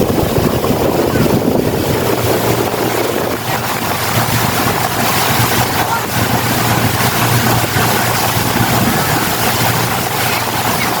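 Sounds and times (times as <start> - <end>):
boat motor running: 0.0 - 11.0
wind noise on microphone: 0.0 - 11.0.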